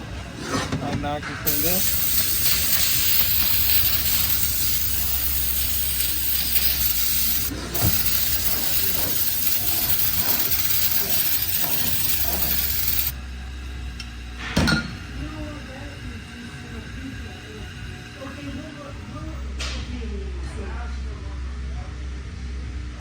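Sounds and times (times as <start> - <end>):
aerosol spray hissing: 1.5 - 13.2.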